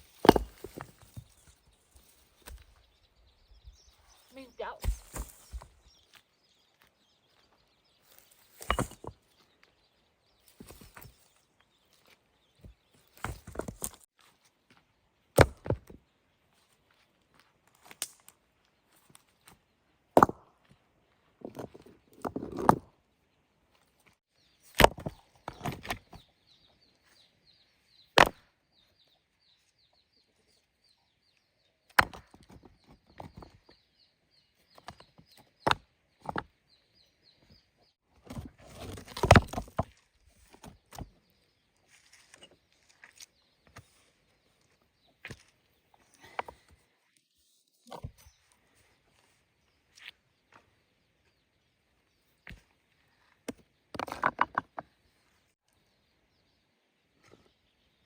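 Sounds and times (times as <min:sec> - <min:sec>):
sharp knocks and thuds: 0:04.7 - 0:05.8.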